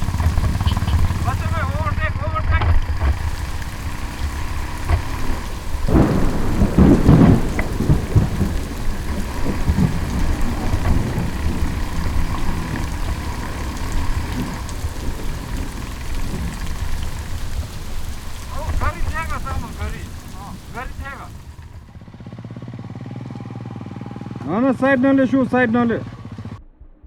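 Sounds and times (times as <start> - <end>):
wind buffeting microphone: 0.0 - 2.2, 2.8 - 21.8.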